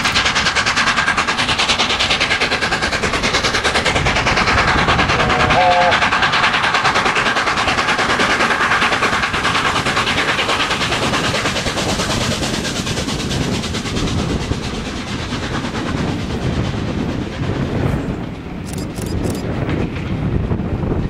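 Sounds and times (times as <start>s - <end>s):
steam locomotive exhaust beats: 0.0s - 21.0s
train running on rails: 0.0s - 21.0s.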